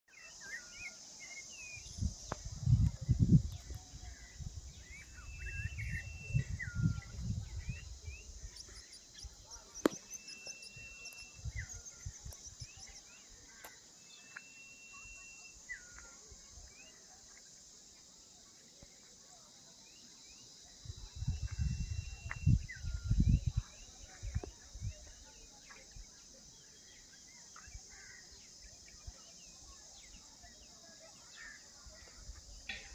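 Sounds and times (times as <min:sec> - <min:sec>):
high-pitched insect chorus: 0:00.1 - 0:32.9
bird whistling: 0:05.0 - 0:07.0.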